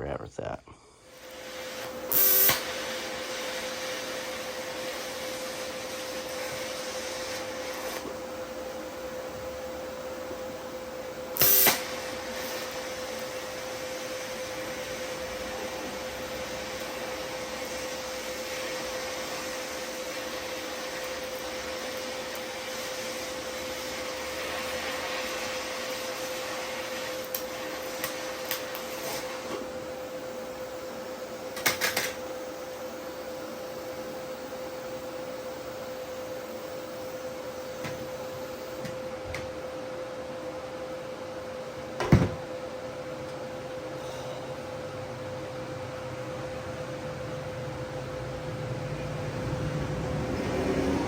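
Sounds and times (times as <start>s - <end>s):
welding hiss and hum: 0.0s - 41.0s
welding crackles: 1.1s - 8.0s, 11.4s - 13.5s.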